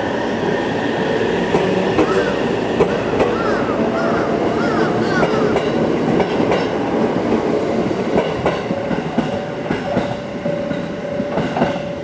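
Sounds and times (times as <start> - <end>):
steady tone from train running gear: 0.0 - 12.0.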